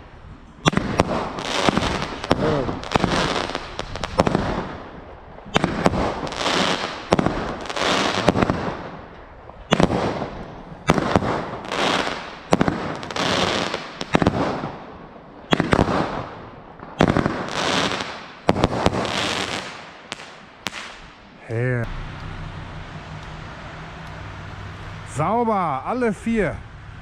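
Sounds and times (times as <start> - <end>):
hissing crackle of fireworks: 0.6 - 21.2
fireworks bangs: 0.6 - 25.6.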